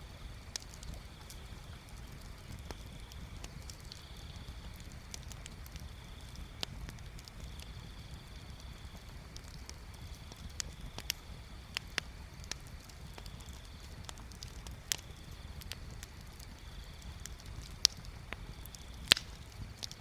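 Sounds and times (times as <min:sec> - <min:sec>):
bonfire crackling and popping: 0:00.0 - 0:20.0
low steady rumble: 0:00.0 - 0:20.0.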